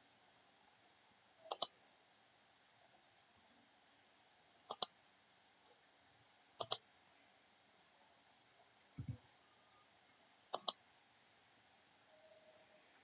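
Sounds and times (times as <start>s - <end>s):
computer mouse double clicks: 6.6s - 6.8s, 8.8s - 9.2s, 10.6s - 10.8s.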